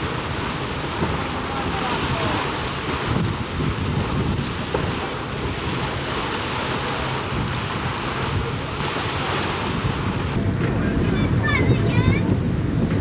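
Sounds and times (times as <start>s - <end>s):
sea water washing: 0.0s - 13.0s
wind buffeting microphone: 0.0s - 13.0s.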